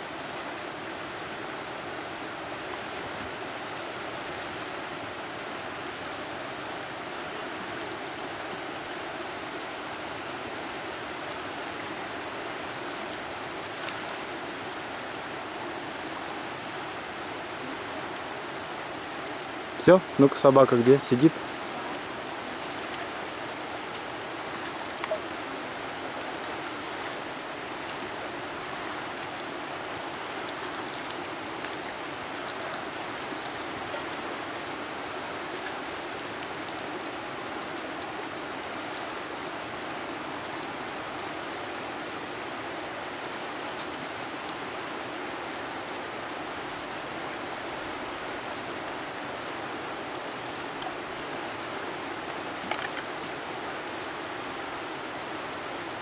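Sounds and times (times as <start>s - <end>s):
river rushing: 0.0s - 56.0s
faint clicks: 52.6s - 53.1s.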